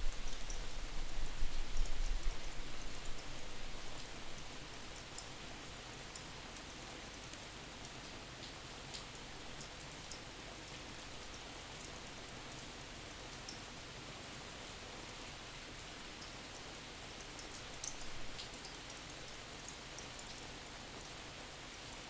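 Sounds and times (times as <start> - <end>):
raindrop ticks: 0.0 - 3.2, 3.9 - 5.4, 6.1 - 10.2, 17.2 - 19.1
steady rain hiss: 0.0 - 22.0.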